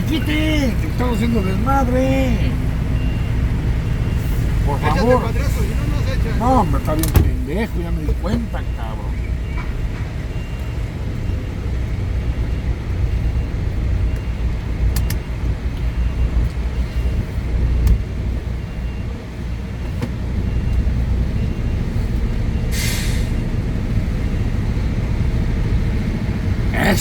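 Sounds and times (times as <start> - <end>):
diesel truck engine running: 0.0 - 27.0
air brake hiss: 22.7 - 23.4.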